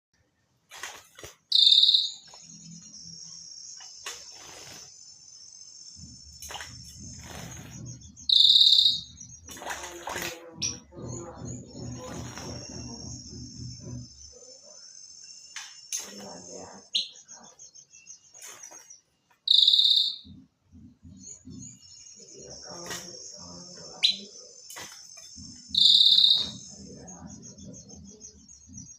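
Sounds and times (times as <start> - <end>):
bird buzzy trill: 0.8 - 18.7, 19.5 - 20.3, 21.2 - 27.2
high-pitched ringing: 1.6 - 3.8, 8.1 - 9.4, 19.5 - 20.3, 25.5 - 27.6.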